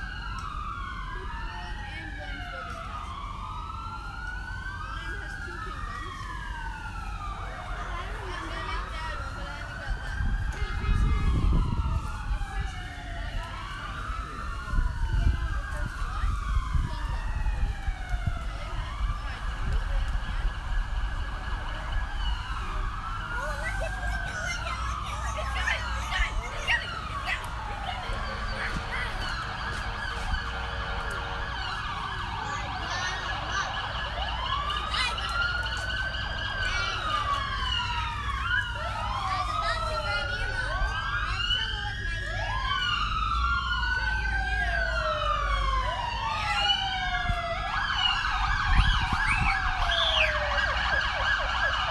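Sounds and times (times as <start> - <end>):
siren wailing: 0.0 - 51.9.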